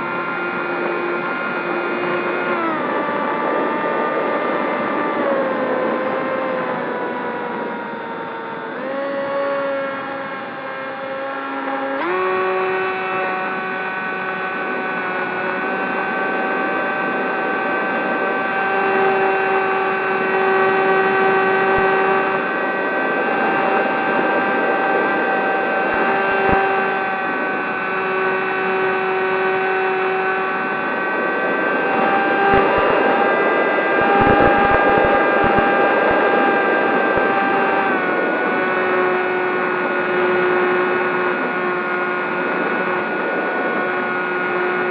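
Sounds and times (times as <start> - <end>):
electric motor and propeller whine: 0.0 - 44.9.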